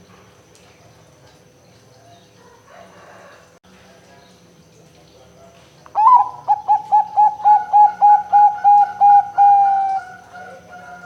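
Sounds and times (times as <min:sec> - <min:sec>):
dove cooing: 0:06.0 - 0:11.0.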